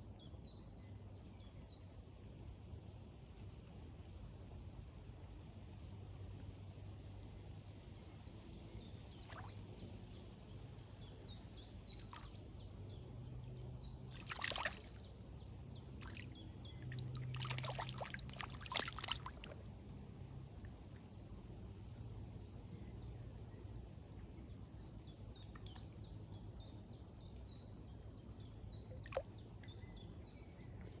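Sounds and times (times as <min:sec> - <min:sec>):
water splashing: 0:14.2 - 0:15.1, 0:16.0 - 0:19.6.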